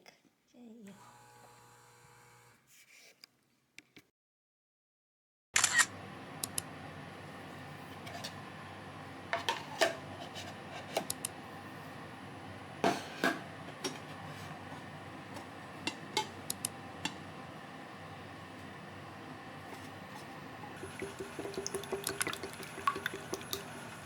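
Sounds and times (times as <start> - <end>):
dishes and cutlery clinking: 15.9 - 16.4.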